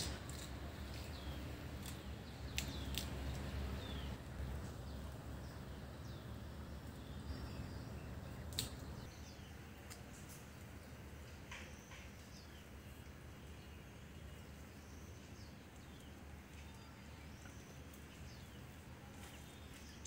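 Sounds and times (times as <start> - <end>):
low steady rumble: 0.0 - 9.8
small birds chirping: 0.0 - 20.0.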